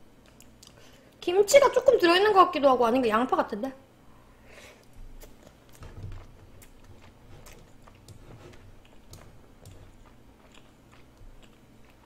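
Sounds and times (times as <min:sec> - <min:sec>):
person chewing: 0:04.8 - 0:12.0.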